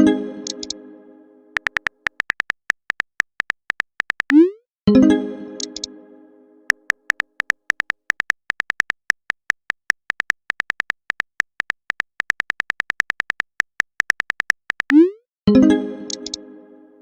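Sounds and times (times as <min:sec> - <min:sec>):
phone keyboard typing clicks: 0:00.4 - 0:00.8, 0:01.6 - 0:04.4, 0:05.6 - 0:05.9, 0:06.7 - 0:15.0, 0:16.1 - 0:16.4.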